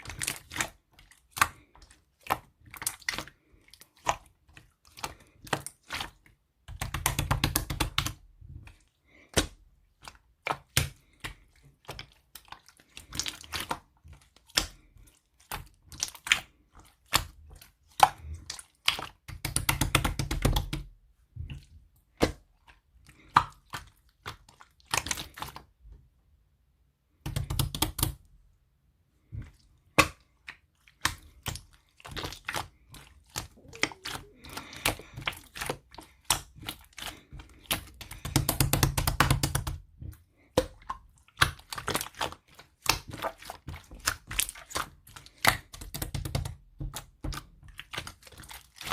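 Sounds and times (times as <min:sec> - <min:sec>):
slime squishing: 0:00.0 - 0:26.2, 0:27.1 - 0:48.9
slime clicking and popping: 0:33.4 - 0:39.8, 0:40.6 - 0:48.9.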